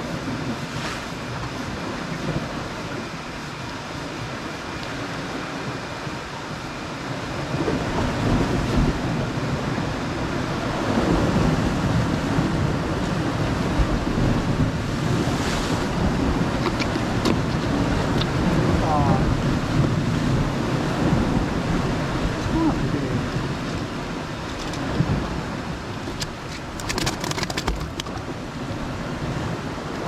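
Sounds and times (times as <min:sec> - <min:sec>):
waves washing against rocks: 0:07.2 - 0:30.0
wind buffeting microphone: 0:07.3 - 0:30.0.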